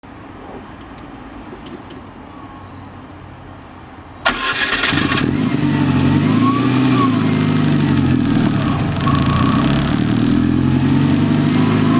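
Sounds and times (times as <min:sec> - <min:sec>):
car engine idling: 0:04.2 - 0:11.9.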